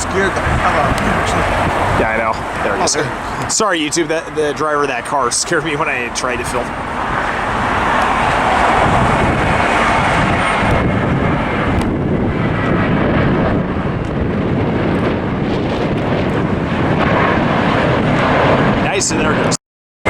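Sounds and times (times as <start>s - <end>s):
jet engines at takeoff thrust: 0.0s - 19.6s.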